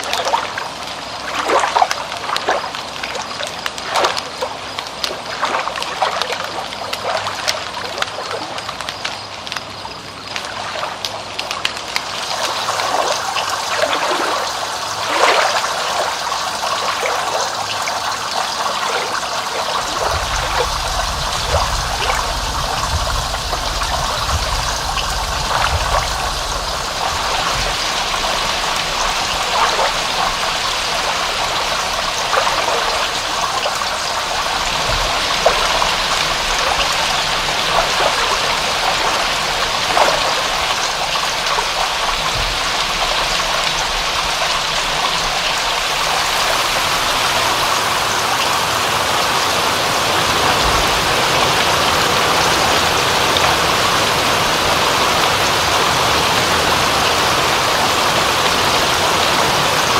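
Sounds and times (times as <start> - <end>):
water trickling and splashing: 0.0 - 59.9
low rumble: 19.8 - 29.5.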